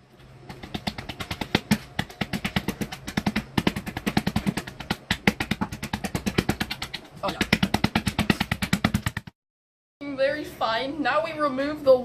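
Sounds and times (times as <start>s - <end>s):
faint low hum: 0.0s - 9.2s
rapid percussive knocking: 0.5s - 9.4s.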